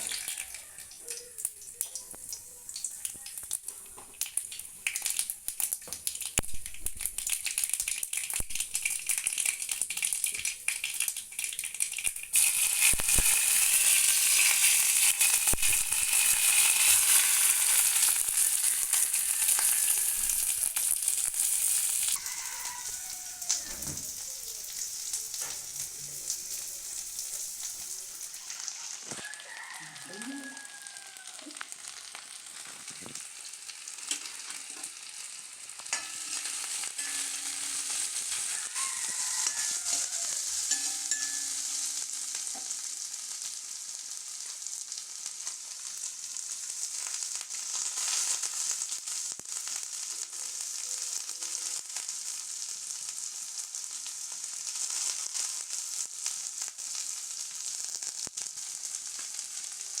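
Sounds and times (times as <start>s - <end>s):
food sizzling in hot oil: 0.0s - 60.0s.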